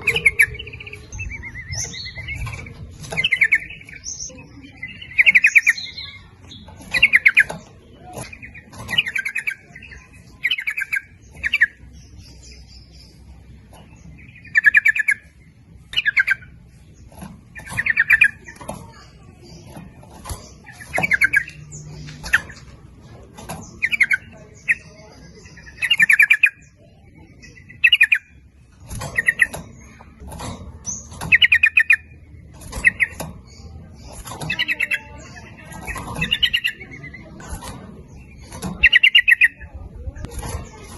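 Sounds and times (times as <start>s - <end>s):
bulbuls calling: 0.0s - 40.9s.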